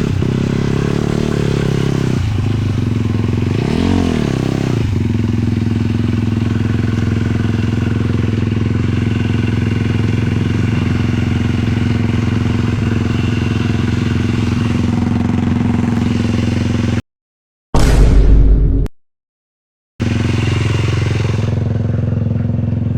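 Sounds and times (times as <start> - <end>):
quad engine running: 0.0 - 17.0, 20.0 - 22.9
short loud burst: 17.8 - 18.9.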